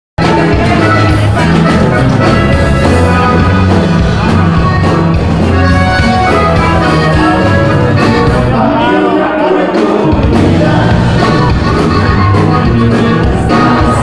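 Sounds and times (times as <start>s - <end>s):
band playing instrumental music: 0.2s - 14.0s.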